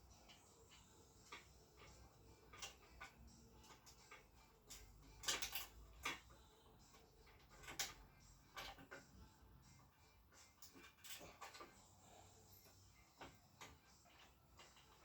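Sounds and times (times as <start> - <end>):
metallic clicks and clinks: 0.0 - 15.0.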